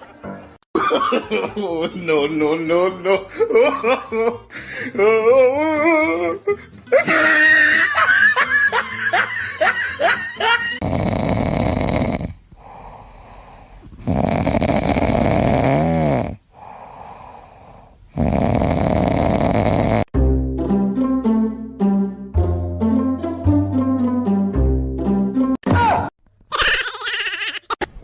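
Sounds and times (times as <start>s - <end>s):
animal snoring: 10.8s - 20.1s.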